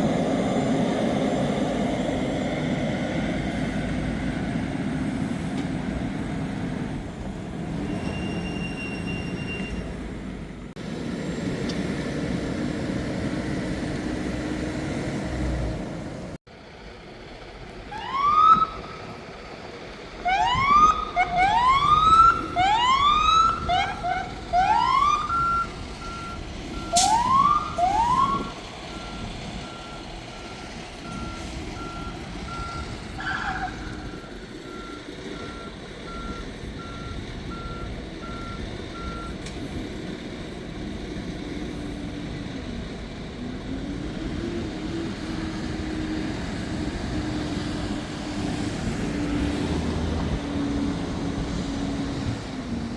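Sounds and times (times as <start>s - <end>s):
siren whoops: 17.9s - 18.9s, 20.2s - 25.7s, 27.0s - 28.6s.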